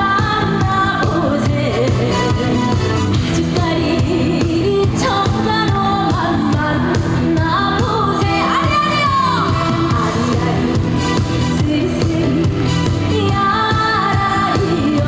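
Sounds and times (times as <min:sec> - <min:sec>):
band backing with steady beat: 0:00.0 - 0:15.0
woman singing: 0:00.0 - 0:15.0.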